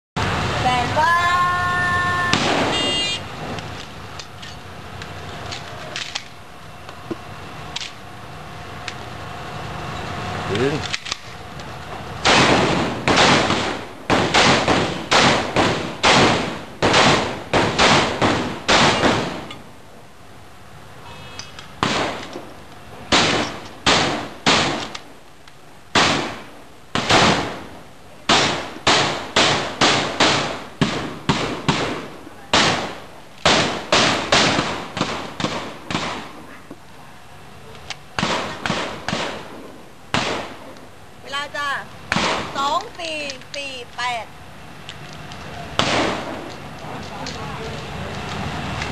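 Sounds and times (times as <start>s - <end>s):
shotgun firing rapidly: 12.2s - 19.4s, 28.3s - 36.3s.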